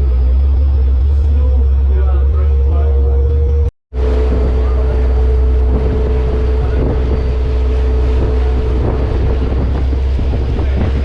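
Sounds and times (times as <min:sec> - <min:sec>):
boat engine droning: 0:00.0 - 0:11.0
wind buffeting microphone: 0:04.0 - 0:11.0.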